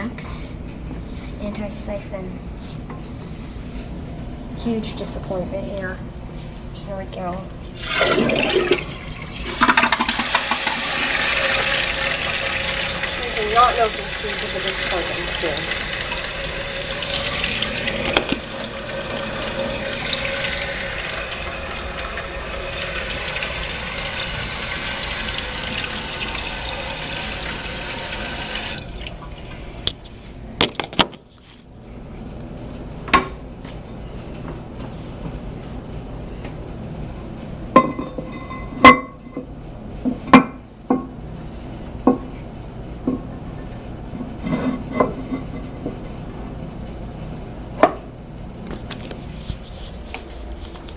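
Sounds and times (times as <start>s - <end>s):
toilet fill valve hissing: 7.8s - 29.3s.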